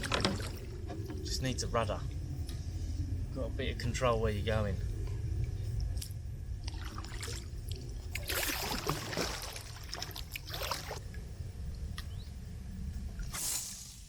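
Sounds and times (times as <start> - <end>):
steady low rumble: 0.0 - 13.4
paddle strokes splashing water: 6.6 - 11.0.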